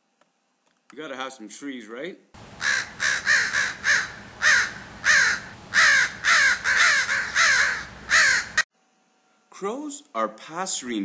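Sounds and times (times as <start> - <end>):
crows cawing: 2.5 - 8.6.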